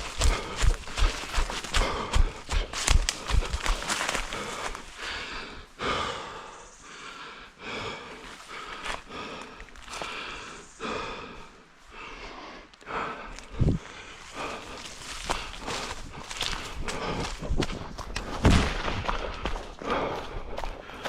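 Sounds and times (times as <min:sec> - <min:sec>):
heavy breathing while running: 0:00.0 - 0:21.0
footfalls thudding on ground: 0:18.3 - 0:19.0.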